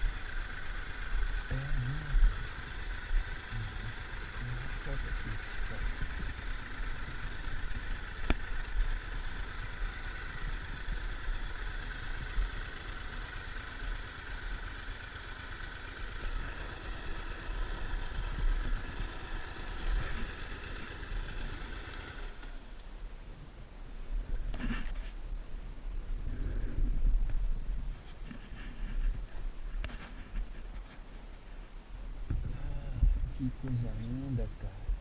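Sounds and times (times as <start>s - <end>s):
motorcycle engine running: 0.0s - 35.0s
uneven low rumble: 22.7s - 35.0s.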